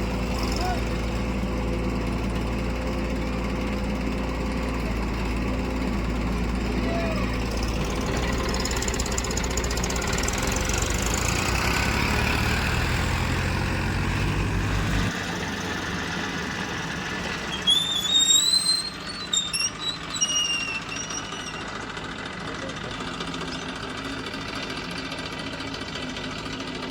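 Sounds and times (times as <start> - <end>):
diesel engine droning: 0.0 - 26.9
short high squeaks: 17.3 - 21.9.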